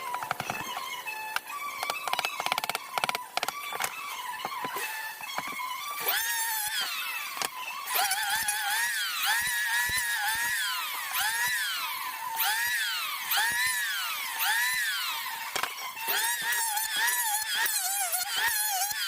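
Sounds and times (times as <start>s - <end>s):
small electric motor whine: 0.0s - 19.0s.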